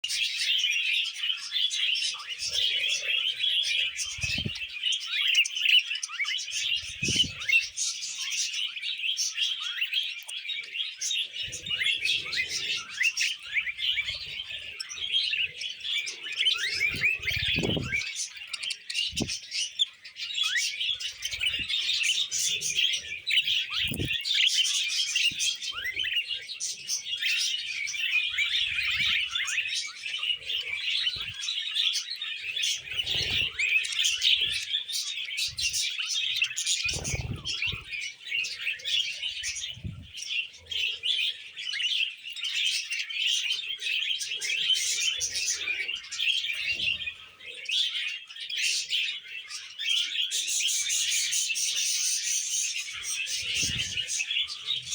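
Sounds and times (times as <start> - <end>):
budgerigars chattering: 0.1 - 54.9.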